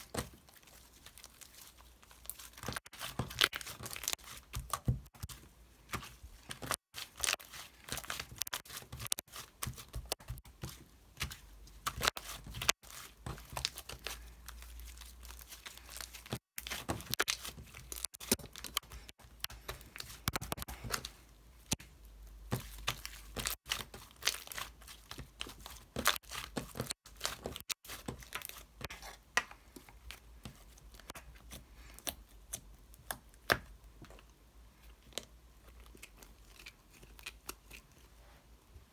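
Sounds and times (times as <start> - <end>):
thin material crinkling and tearing: 0.0 - 5.4, 6.3 - 21.1, 22.5 - 29.2, 35.0 - 38.2.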